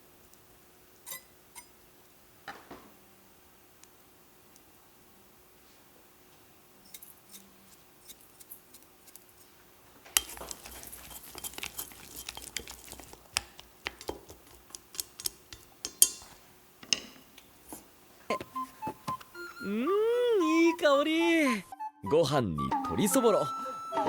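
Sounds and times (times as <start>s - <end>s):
light hiss: 0.0s - 20.5s
utensils clinking and scraping: 1.1s - 1.7s, 10.1s - 17.8s.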